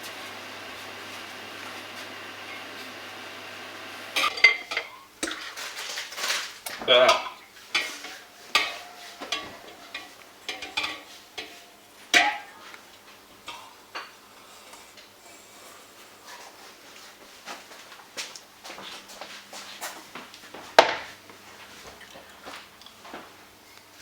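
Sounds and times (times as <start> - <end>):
spoon stirring in a bowl: 7.7 - 11.6.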